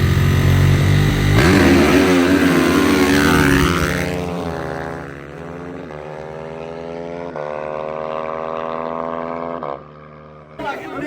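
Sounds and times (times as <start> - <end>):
engine running steadily: 0.0 - 6.2
dirt bike engines revving: 0.0 - 11.0.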